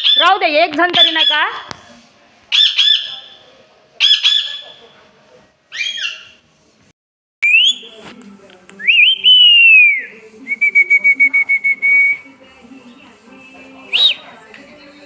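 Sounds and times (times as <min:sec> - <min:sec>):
parrot whistling: 0:02.5 - 0:03.4, 0:04.0 - 0:04.8, 0:05.7 - 0:06.4, 0:07.4 - 0:08.0, 0:08.8 - 0:12.3, 0:13.4 - 0:14.3.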